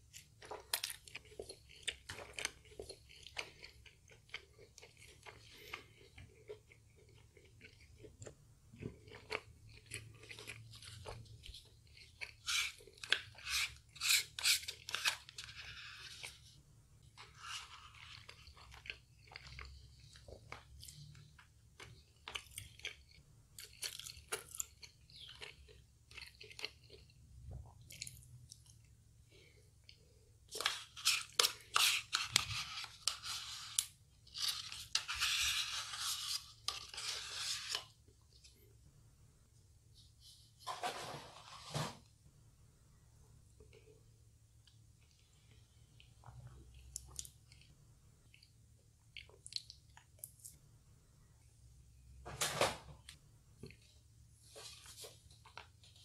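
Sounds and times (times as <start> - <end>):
crunching fried food: 0.0 - 16.4, 17.1 - 33.0
chewing mashed potato: 0.0 - 37.1, 43.5 - 50.7.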